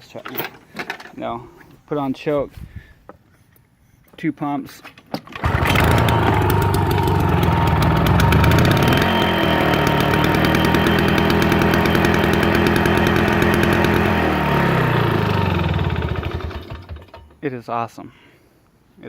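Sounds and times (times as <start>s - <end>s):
small two-stroke mower engine running: 5.3s - 17.4s.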